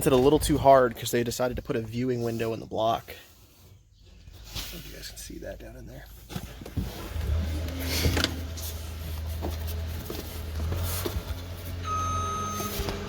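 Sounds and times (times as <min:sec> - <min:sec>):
vehicle engine running: 0:06.8 - 0:13.0
reversing alarm beeping: 0:11.8 - 0:13.0.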